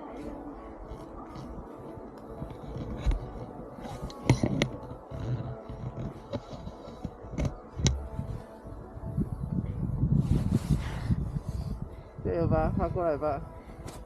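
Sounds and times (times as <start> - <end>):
thumps and scrapes in snow: 10.1 - 11.6.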